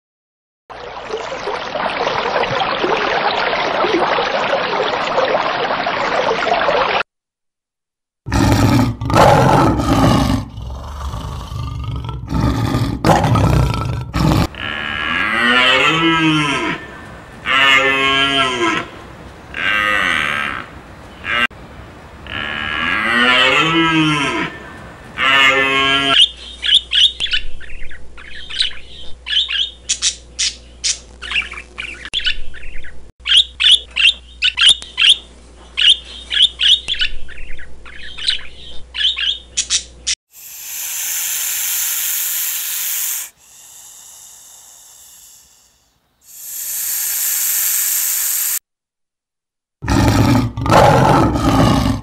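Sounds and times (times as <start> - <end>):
budgerigars chirping: 26.2 - 39.9
harsh hissing: 40.3 - 48.6.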